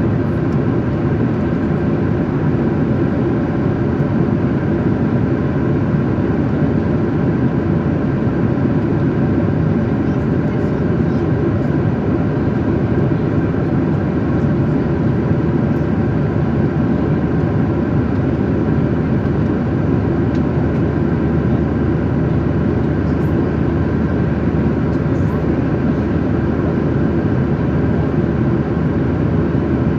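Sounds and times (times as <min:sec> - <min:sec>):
jet cabin engine rush: 0:00.0 - 0:29.9.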